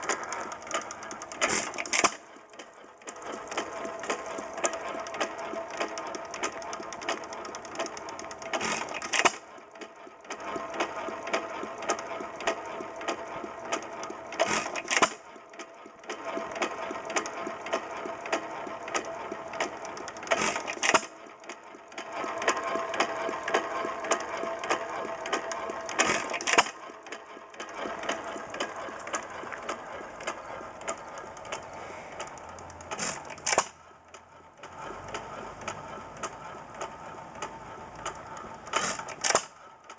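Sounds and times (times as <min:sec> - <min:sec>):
fast mechanical clatter: 0:00.0 - 0:39.9
engine power strokes: 0:22.0 - 0:39.7.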